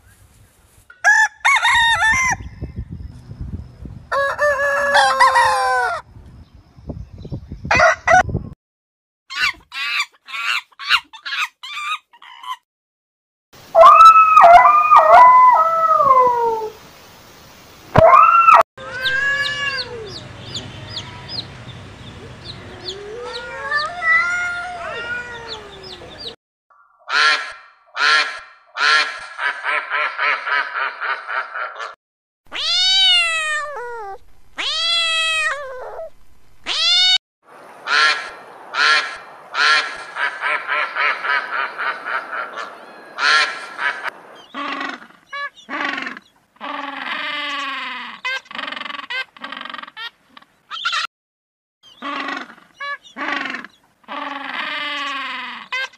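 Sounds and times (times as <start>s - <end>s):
cat meowing: 18.8s - 20.2s, 22.7s - 26.3s, 32.5s - 37.2s.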